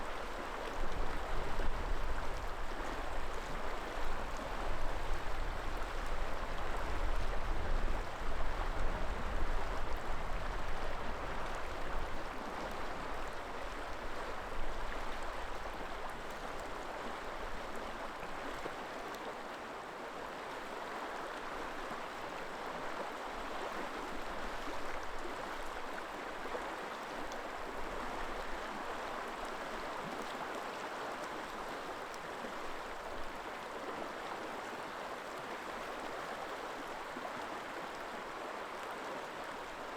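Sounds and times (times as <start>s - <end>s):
river water flowing over rocks: 9.3s - 39.9s.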